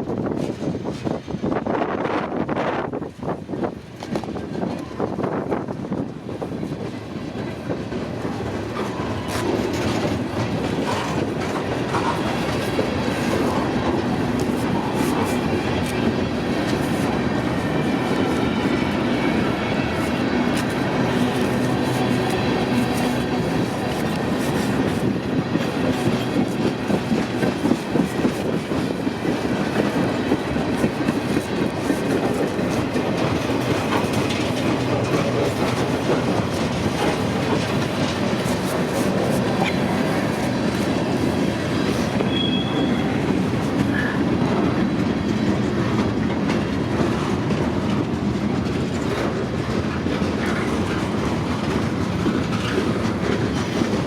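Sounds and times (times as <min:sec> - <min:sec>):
freight train rumbling: 0:00.0 - 0:54.0
wheels clacking over rail joints: 0:06.4 - 0:54.0
high wheel squeal: 0:42.2 - 0:43.2.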